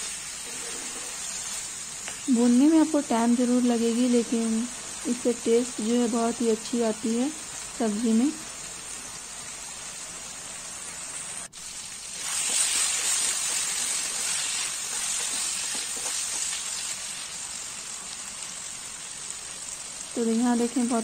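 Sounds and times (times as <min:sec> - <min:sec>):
spatula stirring vegetables: 0:00.0 - 0:06.4, 0:11.6 - 0:18.4
vegetables sizzling in oil: 0:00.0 - 0:21.0.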